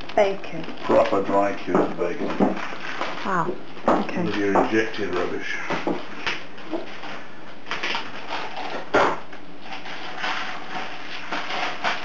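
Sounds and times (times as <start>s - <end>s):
hands rustling food on surface: 0.0s - 12.0s
knock on work surface: 3.8s - 4.8s.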